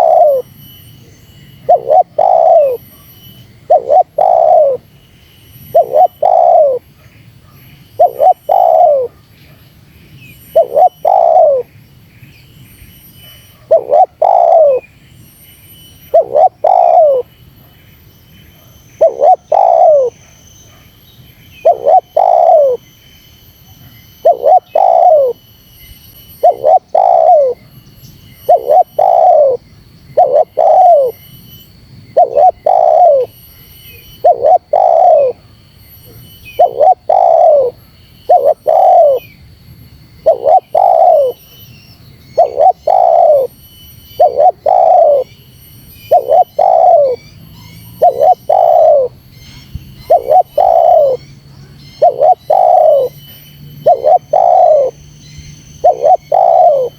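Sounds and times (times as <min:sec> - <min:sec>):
dove cooing: 0:00.0 - 0:00.5, 0:01.6 - 0:03.0, 0:03.6 - 0:04.9, 0:05.7 - 0:06.9, 0:08.0 - 0:09.2, 0:10.5 - 0:11.7, 0:13.6 - 0:14.8, 0:16.1 - 0:17.3, 0:19.0 - 0:20.2, 0:21.6 - 0:22.8, 0:24.2 - 0:25.4, 0:26.4 - 0:27.7, 0:28.4 - 0:31.2, 0:32.1 - 0:33.3, 0:34.1 - 0:35.6, 0:36.5 - 0:39.3, 0:40.2 - 0:41.4, 0:42.4 - 0:43.5, 0:44.2 - 0:45.3, 0:46.1 - 0:47.3, 0:47.9 - 0:49.2, 0:50.0 - 0:51.2, 0:52.0 - 0:55.0, 0:55.8 - 0:56.9.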